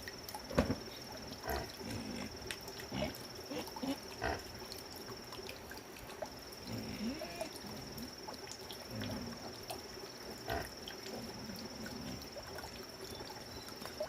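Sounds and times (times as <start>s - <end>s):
pigs grunting: 1.4s - 4.5s, 6.6s - 8.0s, 8.9s - 9.5s, 10.4s - 12.3s.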